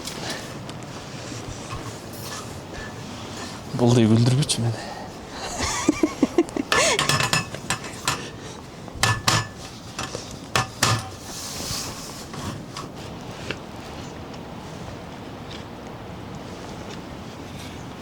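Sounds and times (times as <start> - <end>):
steady background hiss: 0.0 - 18.0
dishes and cutlery clinking: 1.4 - 3.7, 5.6 - 11.3.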